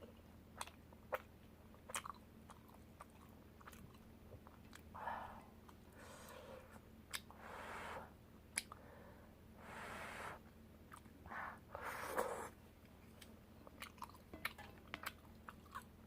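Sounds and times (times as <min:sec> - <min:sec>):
person chewing: 0:00.6 - 0:04.9, 0:11.8 - 0:16.0
noisy mouth sounds: 0:11.3 - 0:12.6.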